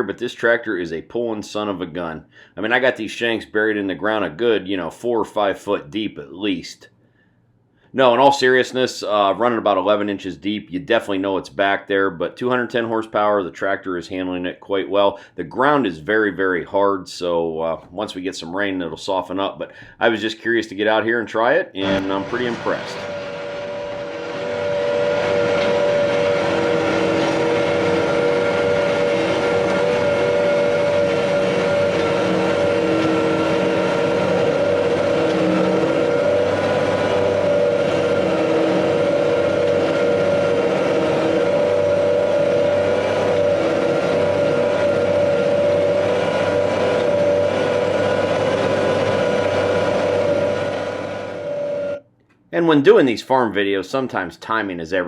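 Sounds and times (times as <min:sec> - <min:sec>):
tractor diesel engine droning: 0:21.8 - 0:52.0.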